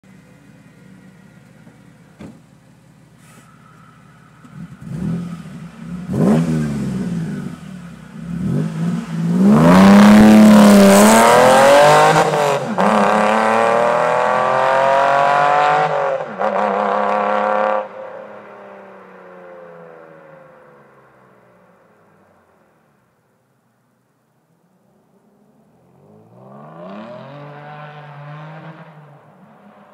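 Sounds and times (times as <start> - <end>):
car engine revving: 3.2 - 18.0, 26.0 - 29.9.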